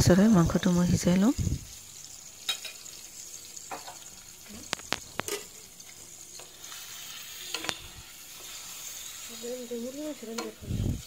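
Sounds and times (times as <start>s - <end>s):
chicken sizzling in oil: 0.0s - 11.0s
spatula tapping a pan: 7.4s - 8.6s, 10.2s - 10.6s.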